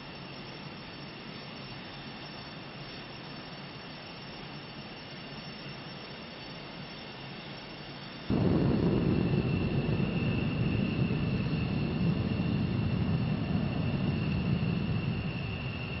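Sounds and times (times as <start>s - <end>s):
jet engine rumble: 8.3s - 16.0s.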